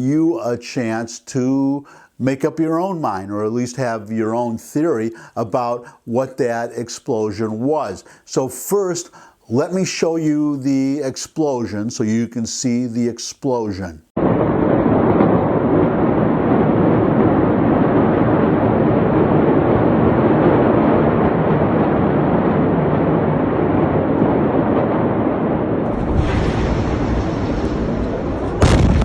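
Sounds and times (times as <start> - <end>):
loud rushing noise: 25.8 - 29.0.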